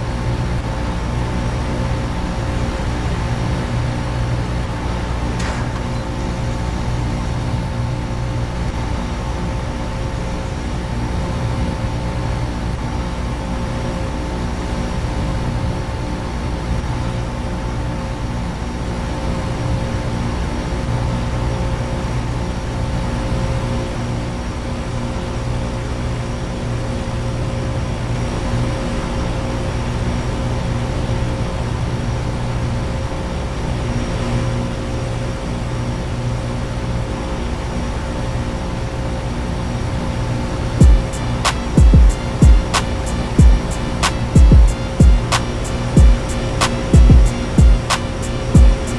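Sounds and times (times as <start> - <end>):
compressor and fan hum: 0.0 - 48.9
steady high tones: 40.8 - 48.9.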